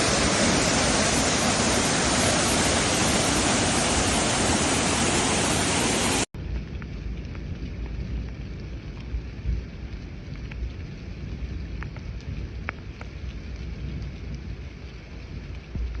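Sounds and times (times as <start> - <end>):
rushing hiss: 0.0 - 6.3
low rumble: 0.0 - 16.0
rain falling: 0.0 - 16.0.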